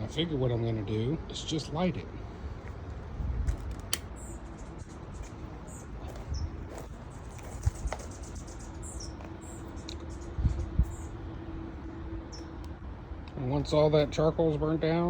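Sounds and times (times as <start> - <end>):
wind rumble on microphone: 2.4 - 12.5.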